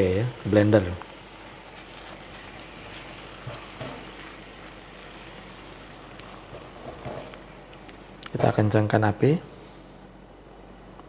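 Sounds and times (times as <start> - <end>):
spatula stirring: 0.0 - 7.7
food sizzling in a wok: 0.0 - 7.8.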